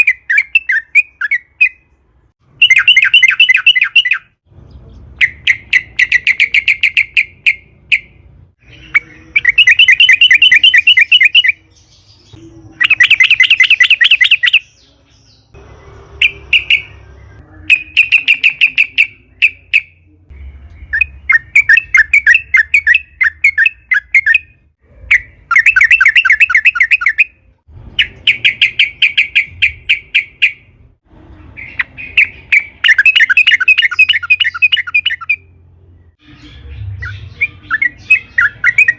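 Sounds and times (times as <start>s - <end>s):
bird bubbly chattering song: 2.6s - 14.9s, 25.1s - 27.3s, 31.6s - 35.4s, 36.2s - 38.9s.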